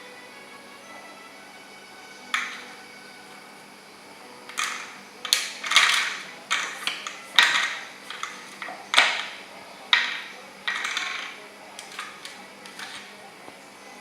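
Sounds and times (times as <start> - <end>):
toy clattering and rattling: 2.2 - 2.9, 4.4 - 13.4.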